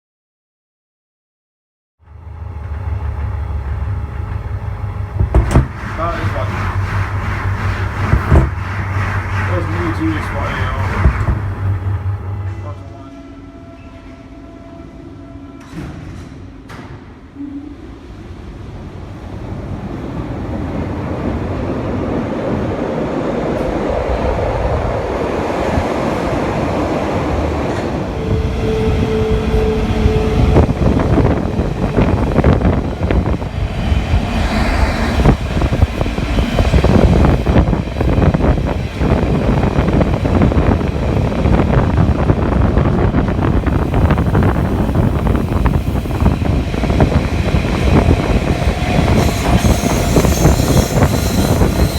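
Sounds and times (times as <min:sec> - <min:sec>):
train rumble: 0:02.0 - 0:51.9.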